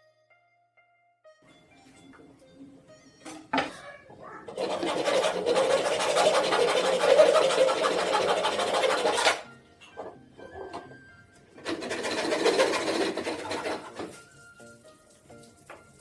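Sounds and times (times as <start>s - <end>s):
power tool rattling on wood: 4.5s - 9.4s, 11.6s - 14.2s.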